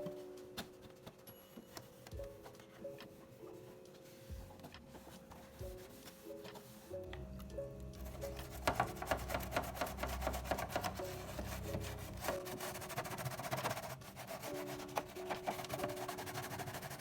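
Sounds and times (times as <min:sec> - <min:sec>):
soft background music: 0:00.0 - 0:17.0
hand scrubbing strokes: 0:08.1 - 0:17.0.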